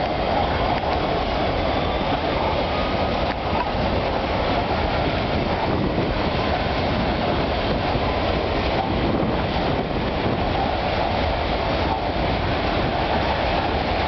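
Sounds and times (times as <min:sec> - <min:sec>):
freight train wheels on rails: 0:00.0 - 0:14.0.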